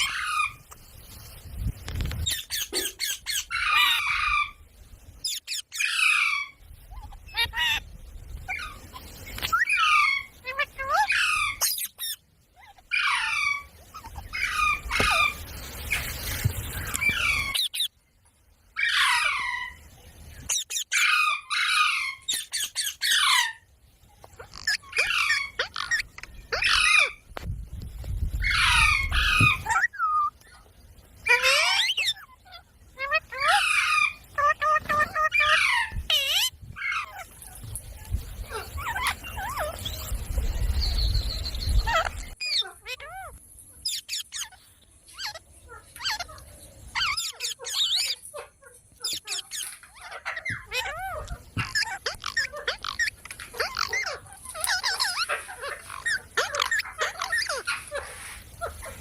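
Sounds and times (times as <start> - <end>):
parakeet screech calls: 2.2 - 4.6, 5.2 - 7.8, 9.4 - 16.1, 16.8 - 17.9, 20.4 - 23.6, 24.4 - 27.2, 28.4 - 30.3, 31.2 - 37.3, 41.8 - 45.4, 46.0 - 46.3, 46.9 - 48.3, 49.0 - 58.8.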